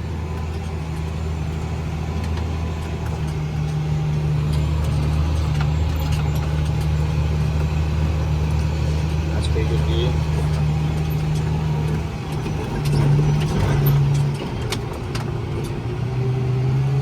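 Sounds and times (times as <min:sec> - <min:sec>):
tractor diesel engine drone: 0:00.0 - 0:17.0.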